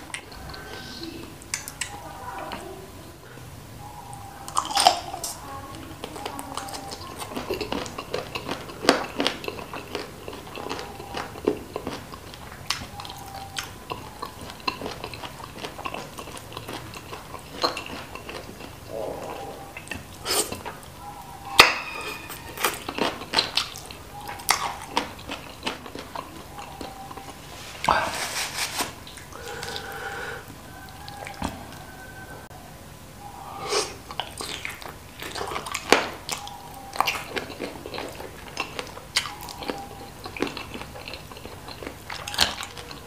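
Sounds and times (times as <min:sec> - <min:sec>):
chewing: 0:00.0 - 0:02.8, 0:03.8 - 0:28.2, 0:29.0 - 0:32.4, 0:33.6 - 0:43.0
sucking: 0:27.4 - 0:30.5.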